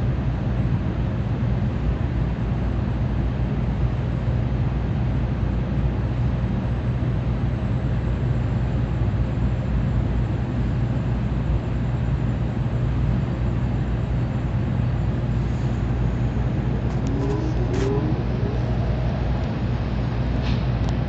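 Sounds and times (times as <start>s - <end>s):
train cabin rumble and rushing: 12.9s - 21.0s.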